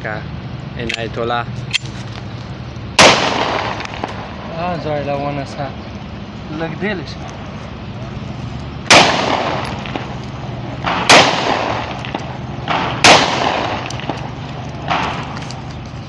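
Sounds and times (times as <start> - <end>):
fainter sharp bangs: 1.8 - 15.9
loud pistol shots: 3.0 - 4.5, 8.9 - 15.4.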